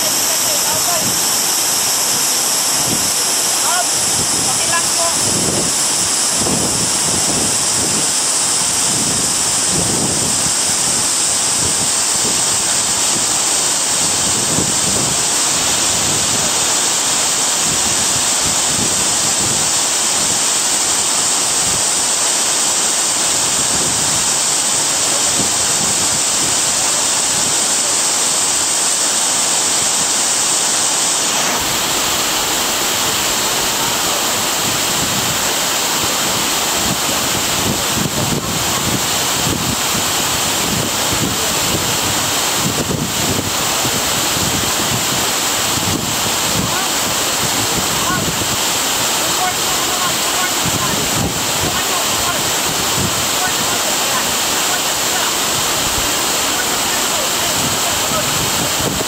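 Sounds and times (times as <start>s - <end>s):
loud rush of water: 0.0s - 59.0s.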